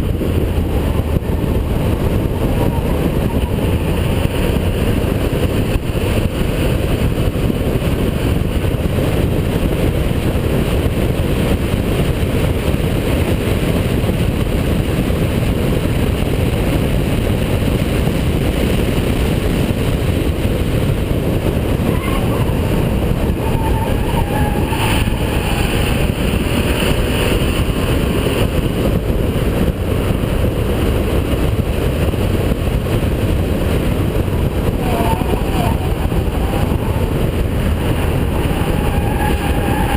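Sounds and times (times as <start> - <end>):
car engine rumbling at speed: 0.0 - 39.9
road noise: 0.0 - 39.9
wind noise: 0.0 - 39.9.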